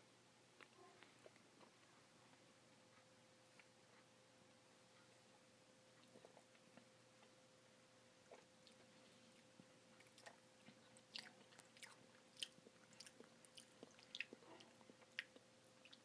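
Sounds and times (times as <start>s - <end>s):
person chewing wetly: 8.2s - 16.0s.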